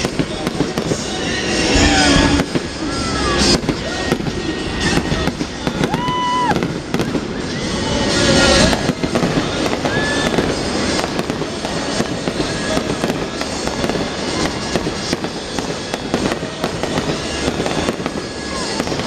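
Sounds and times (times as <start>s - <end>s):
fireworks crackling and banging: 0.0s - 19.0s.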